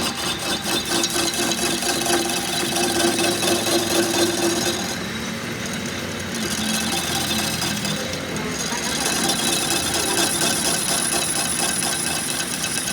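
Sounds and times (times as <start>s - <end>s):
tool rubbing or scraping: 0.0s - 5.0s.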